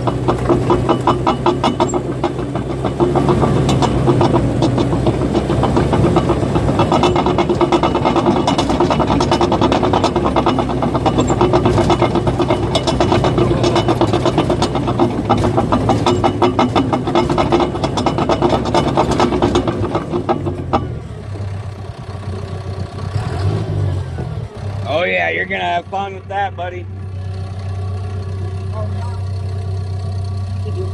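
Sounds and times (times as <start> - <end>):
diesel engine humming: 0.0 - 30.9
steady mechanical whine: 0.0 - 30.9
steel tracks clanking: 0.0 - 30.9.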